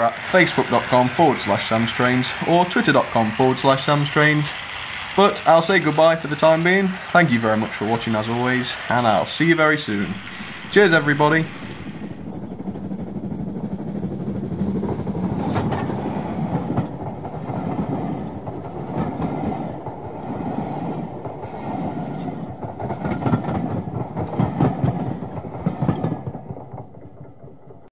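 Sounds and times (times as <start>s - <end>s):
train wheels clattering over rails: 0.0s - 27.9s.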